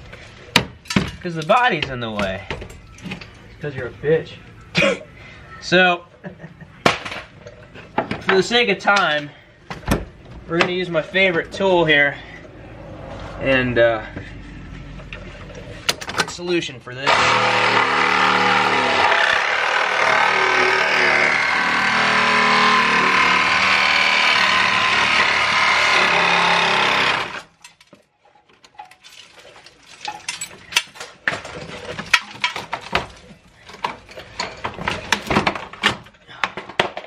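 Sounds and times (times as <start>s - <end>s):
power tool cutting steel: 17.1s - 27.5s.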